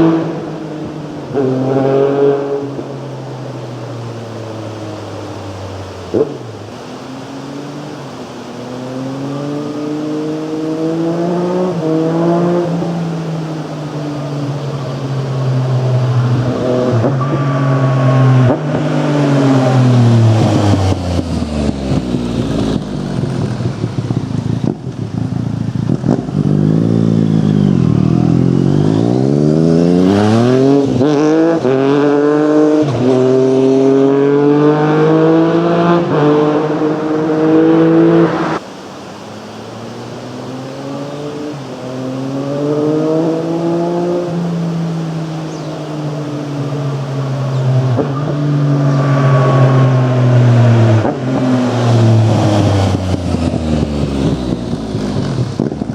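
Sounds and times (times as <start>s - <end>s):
motorcycle engine revving: 6.1s - 38.6s, 39.6s - 55.9s.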